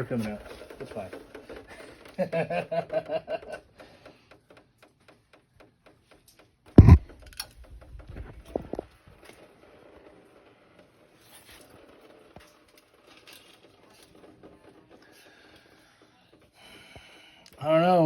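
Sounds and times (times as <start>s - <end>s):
heavy metal knock: 6.8s - 7.1s.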